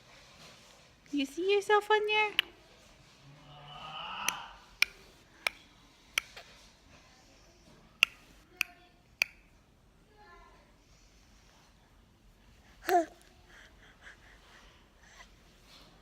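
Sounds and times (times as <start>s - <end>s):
baby cooing: 12.8s - 14.2s.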